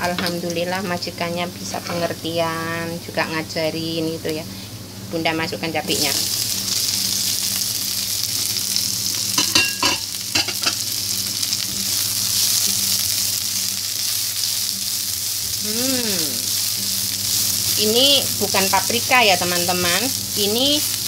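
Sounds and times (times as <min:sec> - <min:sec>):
food sizzling in hot oil: 0:05.6 - 0:21.0.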